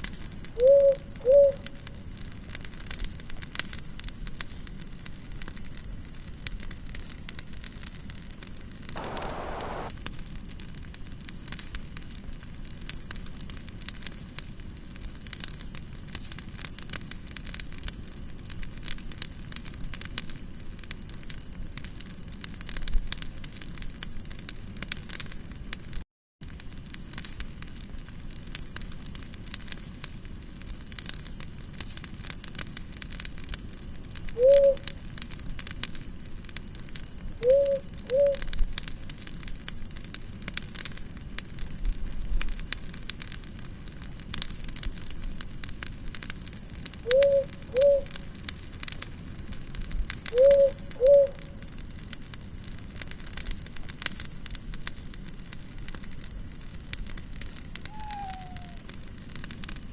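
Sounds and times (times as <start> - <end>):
campfire crackling: 0.0 - 59.9
short low rising calls: 9.0 - 9.9, 57.9 - 58.8
high chirps: 47.1 - 48.1, 57.9 - 58.8.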